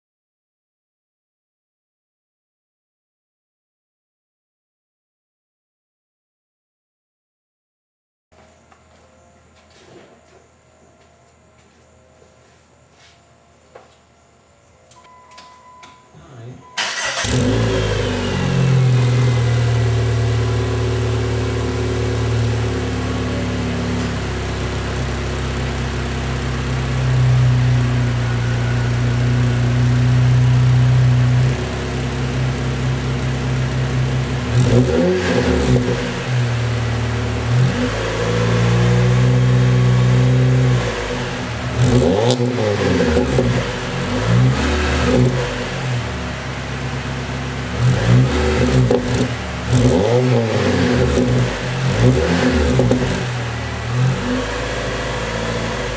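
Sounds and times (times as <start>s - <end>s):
car engine idling and revving: 16.6s - 55.9s.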